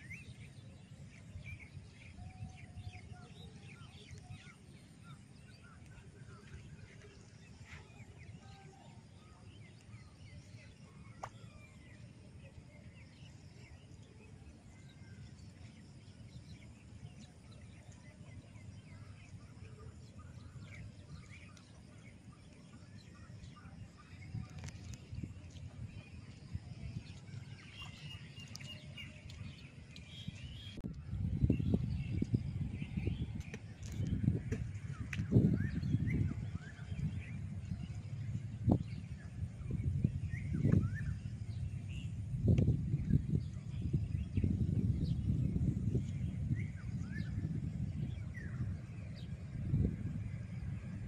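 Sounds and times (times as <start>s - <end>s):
low steady rumble: 0.0s - 51.0s
bird chirps: 14.8s - 49.4s.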